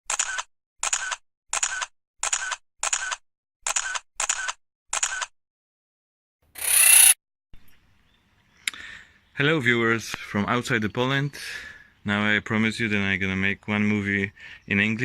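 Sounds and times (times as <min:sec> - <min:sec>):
short sound effect bursts: 0:06.6 - 0:07.2.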